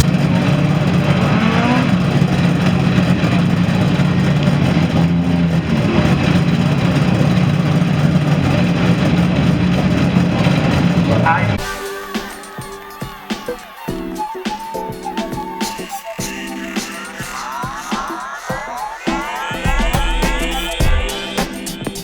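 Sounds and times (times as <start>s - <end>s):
rally car engine running: 0.0s - 11.6s.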